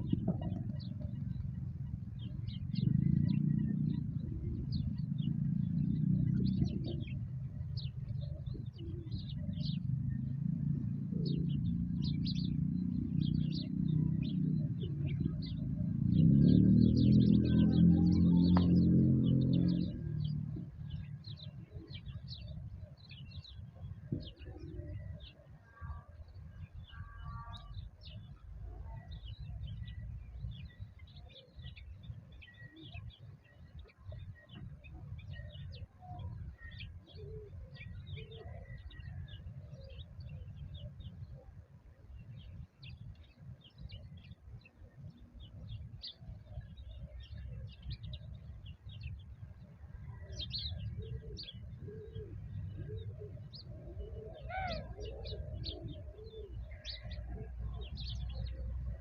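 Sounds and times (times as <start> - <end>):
steady low rumble: 0.0 - 32.4
small birds chirping: 0.0 - 59.0
lower bird calls: 42.2 - 59.0.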